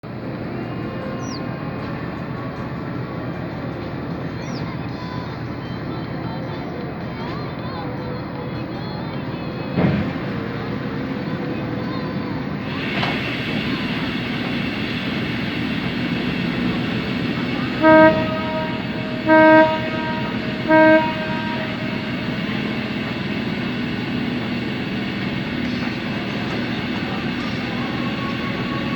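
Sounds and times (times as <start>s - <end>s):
ship engines running: 1.3s - 28.9s
ferry horn blasts: 12.7s - 28.9s.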